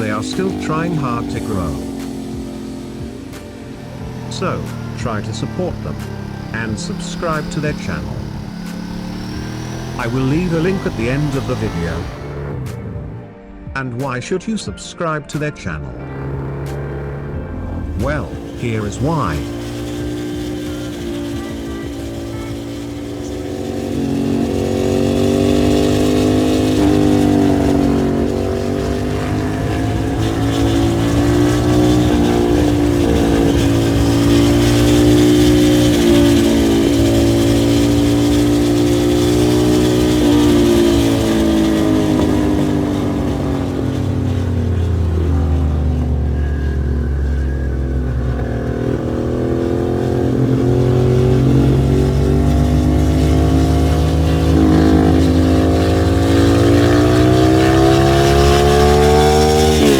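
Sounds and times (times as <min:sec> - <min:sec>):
motorcycle engine revving: 0:00.0 - 0:14.1, 0:15.2 - 0:59.9.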